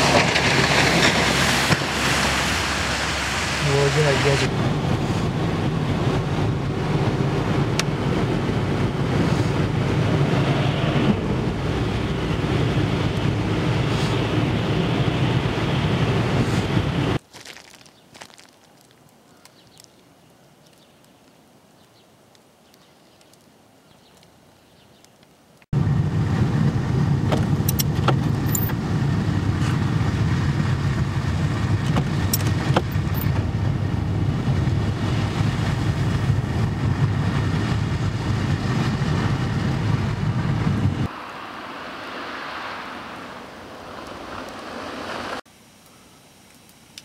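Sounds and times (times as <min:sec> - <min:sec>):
car engine and road rumble: 0:00.0 - 0:19.9, 0:25.2 - 0:45.5.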